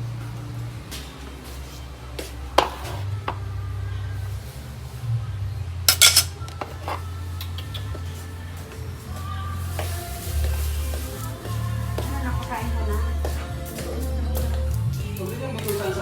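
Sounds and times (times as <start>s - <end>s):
dishes and utensils clinking: 5.9s - 7.8s.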